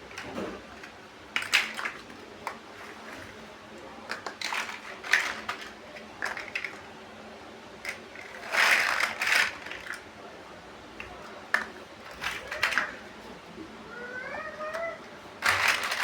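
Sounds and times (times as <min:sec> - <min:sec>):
plastic pieces clattering: 0:00.1 - 0:02.6, 0:04.1 - 0:06.8, 0:07.8 - 0:10.0, 0:11.6 - 0:13.0, 0:15.4 - 0:16.0
plastic bricks clicking: 0:01.4 - 0:02.6, 0:04.1 - 0:06.8, 0:07.9 - 0:10.0, 0:11.5 - 0:13.0, 0:15.4 - 0:16.0.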